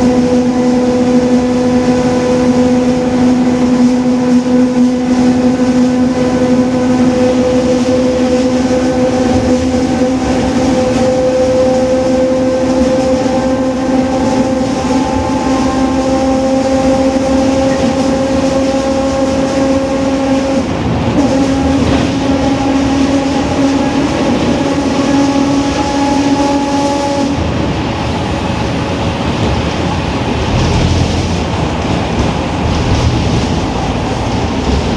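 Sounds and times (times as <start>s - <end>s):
road and tyre noise: 0.0s - 34.9s
gear whine: 29.8s - 34.9s.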